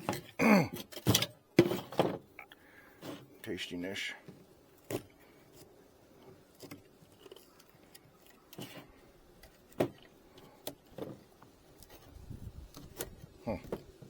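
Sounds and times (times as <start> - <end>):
wooden frames knocking and clicking: 0.0 - 2.4.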